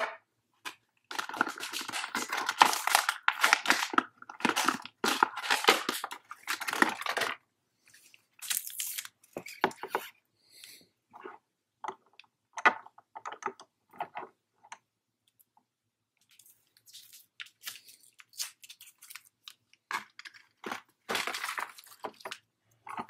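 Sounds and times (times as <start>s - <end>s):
plastic packaging crinkling: 1.1s - 7.4s, 8.4s - 9.9s, 16.3s - 23.0s.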